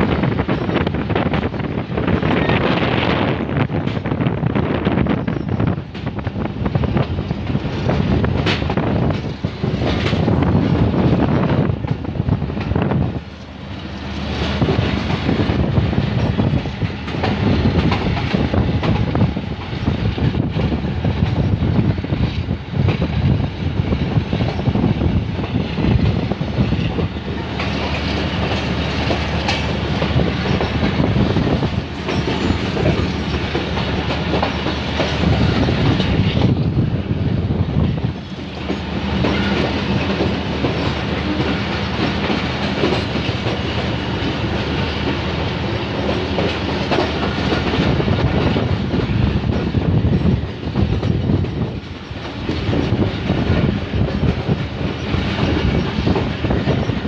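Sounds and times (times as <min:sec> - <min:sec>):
clickety-clack over rail joints: 0:00.0 - 0:57.0
train wheels rumbling on rail: 0:00.0 - 0:57.0.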